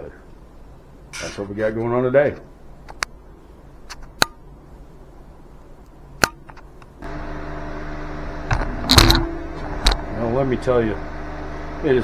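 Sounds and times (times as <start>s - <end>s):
machine humming: 7.0s - 12.0s.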